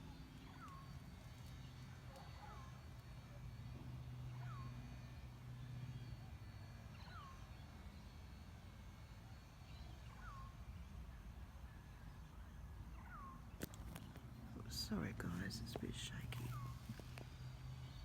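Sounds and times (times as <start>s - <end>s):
low steady hum: 0.0s - 18.0s
bird whistling: 9.7s - 10.6s, 12.9s - 14.2s.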